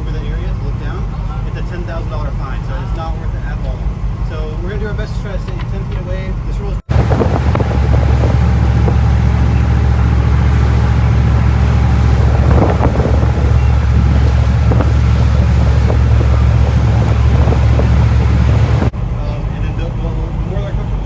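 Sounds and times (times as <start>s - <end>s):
motorboat engine rumbling: 0.0s - 21.0s
wind buffeting microphone: 6.9s - 18.9s.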